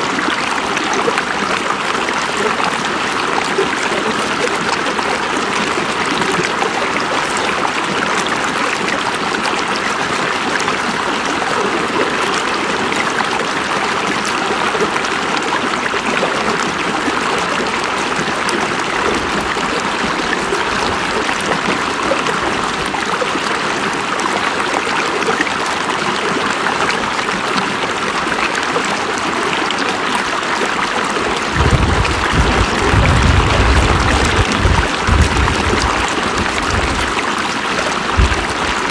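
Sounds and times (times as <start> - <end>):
river water rushing: 0.0 - 38.9
low rumble: 31.5 - 37.2.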